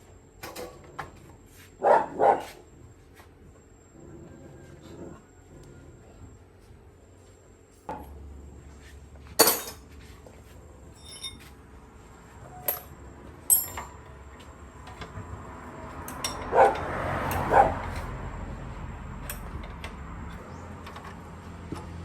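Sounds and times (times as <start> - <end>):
metal tools clinking on metal: 9.4 - 9.9, 10.9 - 11.6, 12.5 - 14.1, 16.0 - 18.1.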